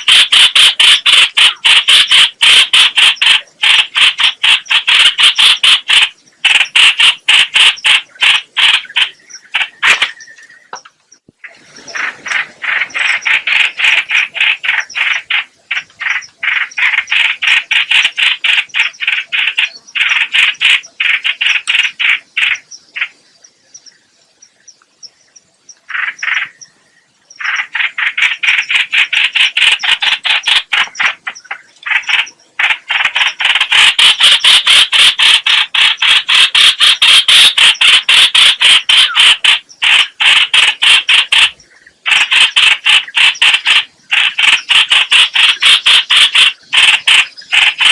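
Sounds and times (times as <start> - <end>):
bird calling rapid notes: 27.4 - 47.9.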